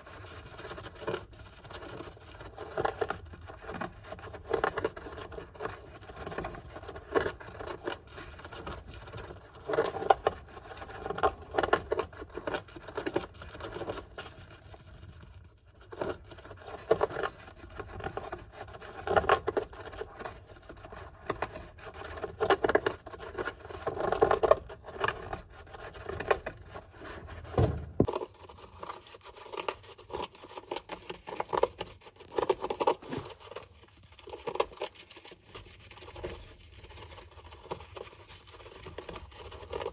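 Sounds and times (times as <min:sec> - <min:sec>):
hamster scratching in sand: 0:00.0 - 0:39.9
sharp thump: 0:27.5 - 0:28.1.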